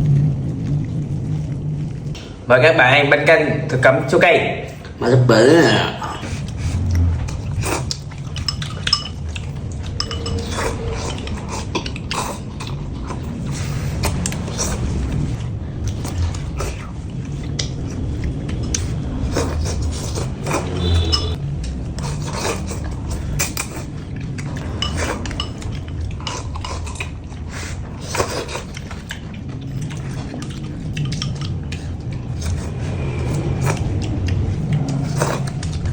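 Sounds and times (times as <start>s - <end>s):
low steady hum: 0.0s - 35.9s
cutlery clinking against a bowl: 7.8s - 12.8s, 18.6s - 21.4s, 22.0s - 27.1s.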